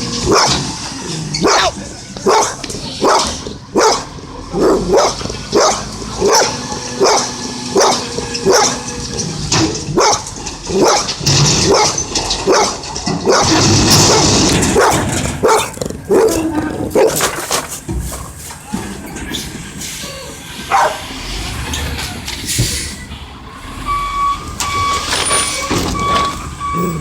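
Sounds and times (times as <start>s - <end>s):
dog barking: 0.2s - 0.7s, 1.4s - 8.9s, 9.9s - 17.3s, 20.7s - 21.1s.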